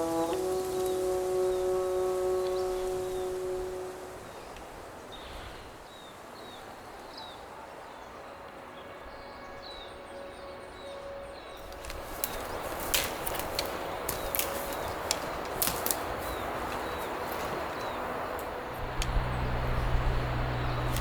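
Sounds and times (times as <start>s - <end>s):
steady rushing background: 9.3s - 21.0s.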